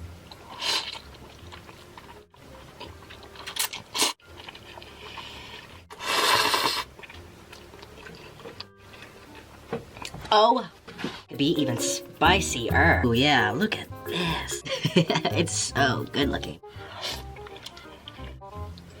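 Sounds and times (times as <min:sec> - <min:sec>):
chewing and slurping noodles: 0:00.2 - 0:10.2, 0:16.7 - 0:19.0.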